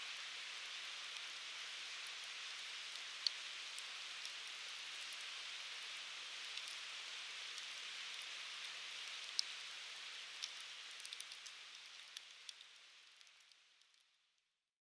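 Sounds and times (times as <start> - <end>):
firewood crackling and popping: 10.3 - 14.0.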